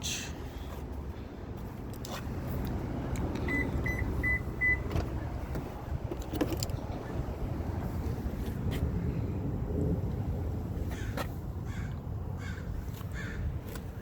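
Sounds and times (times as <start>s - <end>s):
low steady rumble: 2.5s - 14.0s
short electronic beeps: 3.5s - 4.9s.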